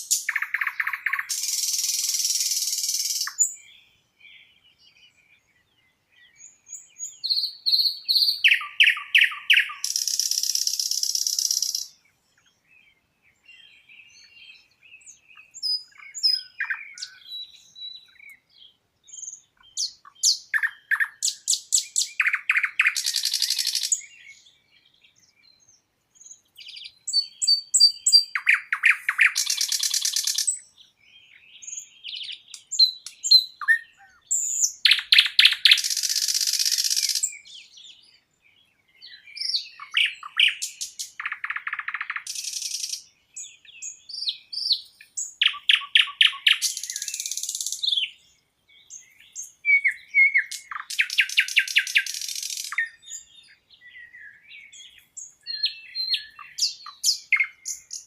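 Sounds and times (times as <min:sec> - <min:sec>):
soft chirps and whistles: 0:00.0 - 0:03.7, 0:06.3 - 0:12.5, 0:19.1 - 0:24.5, 0:26.6 - 0:30.7, 0:31.6 - 0:38.1, 0:39.0 - 0:48.2, 0:48.8 - 0:58.0
songbird phrase with buzzy rattle: 0:00.0 - 0:03.8, 0:14.2 - 0:25.3, 0:26.2 - 0:38.2, 0:39.0 - 0:48.2, 0:48.8 - 0:58.0.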